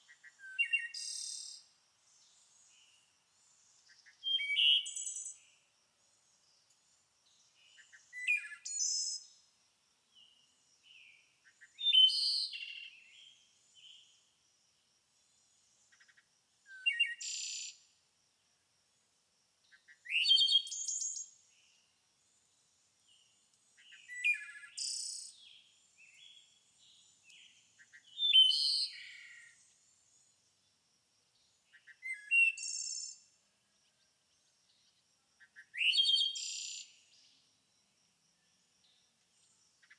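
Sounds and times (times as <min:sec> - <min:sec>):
songbird chirping and whistling: 0:00.3 - 0:01.3, 0:04.2 - 0:05.3, 0:11.8 - 0:12.8, 0:23.8 - 0:25.6, 0:27.3 - 0:29.2, 0:31.8 - 0:33.2, 0:35.8 - 0:36.8.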